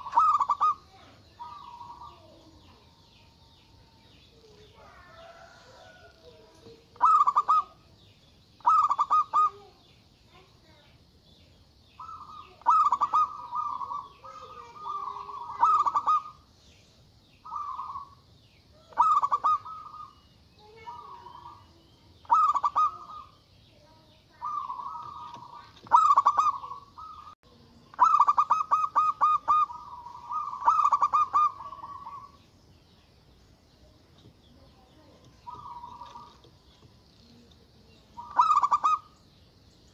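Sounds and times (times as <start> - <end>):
dove rolling coos: 0.0 - 2.3, 4.7 - 7.9, 8.6 - 9.6, 12.0 - 16.4, 17.4 - 18.2, 18.8 - 20.2, 20.8 - 23.3, 24.4 - 32.4, 35.4 - 36.6, 38.2 - 39.2.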